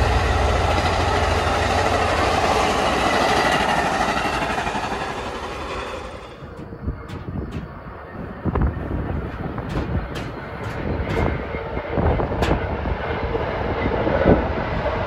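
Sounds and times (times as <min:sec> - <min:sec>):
train passing on rails: 0:00.0 - 0:15.0.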